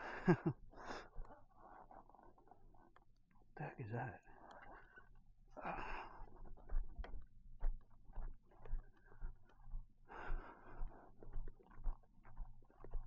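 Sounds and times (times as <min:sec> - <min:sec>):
heavy breathing: 0:00.0 - 0:02.0, 0:05.6 - 0:06.4, 0:10.1 - 0:11.1.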